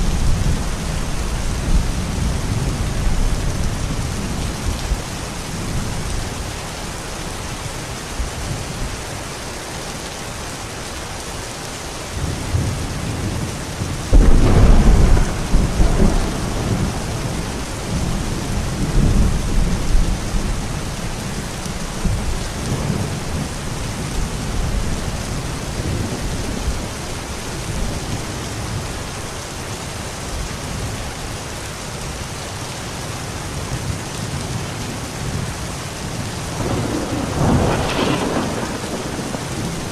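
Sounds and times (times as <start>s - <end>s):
steady rain: 0.0s - 39.9s
thunder rumbling: 12.2s - 28.8s, 36.1s - 39.9s.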